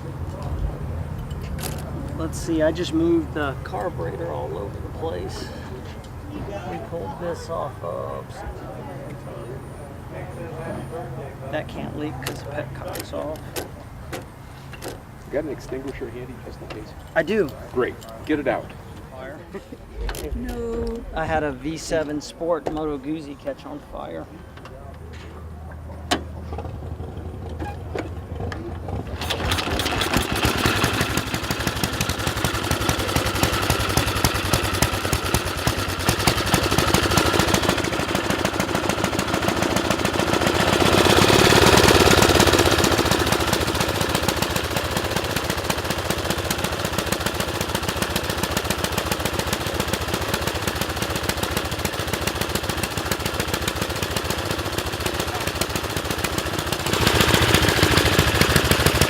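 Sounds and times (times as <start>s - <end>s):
motorcycle engine running: 26.4s - 59.0s.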